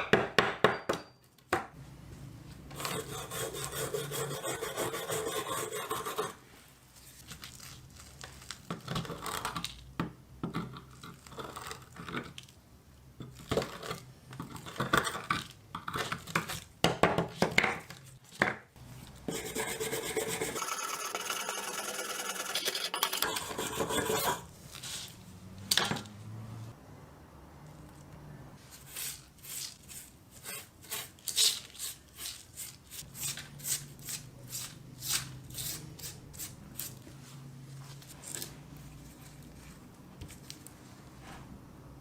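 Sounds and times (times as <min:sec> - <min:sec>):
rubbing and scraping on pliers: 0:02.7 - 0:06.4, 0:19.3 - 0:25.2.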